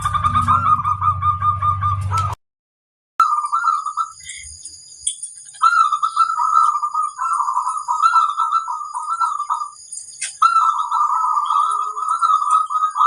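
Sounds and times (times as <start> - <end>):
dove cooing: 0.0 - 2.4, 3.2 - 4.5, 5.5 - 13.0.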